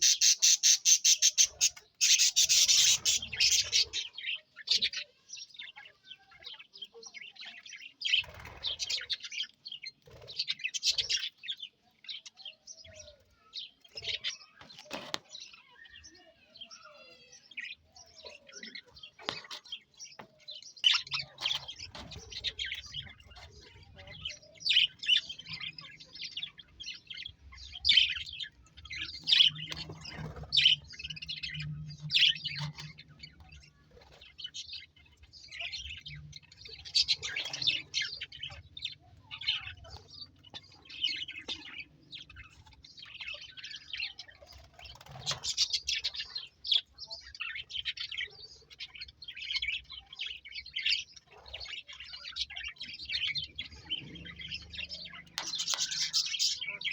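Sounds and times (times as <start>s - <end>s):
budgerigars chirping: 0.0s - 5.2s, 51.5s - 56.9s.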